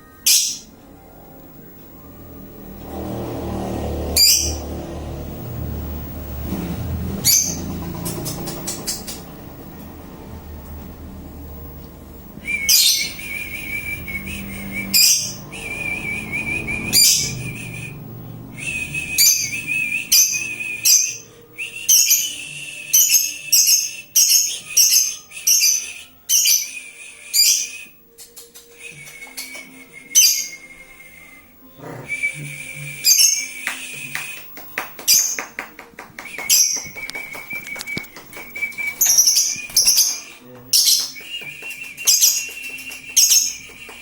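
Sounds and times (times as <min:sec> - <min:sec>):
lovebird trilling and chirping: 0:00.2 - 0:00.7, 0:04.2 - 0:04.7, 0:07.2 - 0:09.4, 0:12.6 - 0:13.4, 0:14.8 - 0:15.5, 0:16.9 - 0:17.6, 0:19.2 - 0:21.3, 0:35.0 - 0:35.5, 0:36.5 - 0:41.2, 0:42.0 - 0:43.7.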